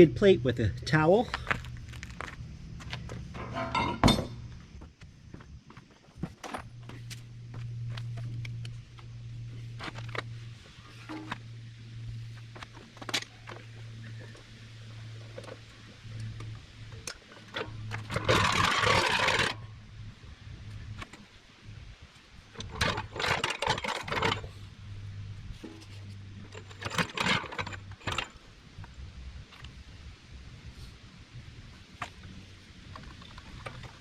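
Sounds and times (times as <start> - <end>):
steady low hum: 0.0 - 34.0
metal scraping: 3.1 - 4.5, 17.3 - 19.7.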